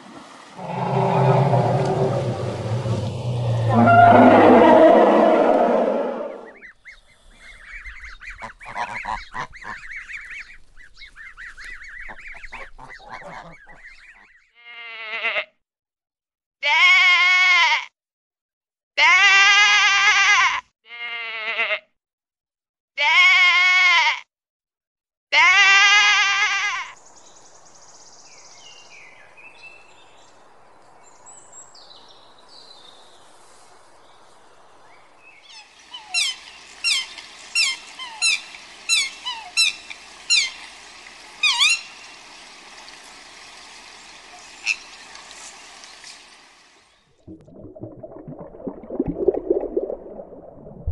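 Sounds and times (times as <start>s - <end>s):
low steady hiss: 27.0s - 47.0s.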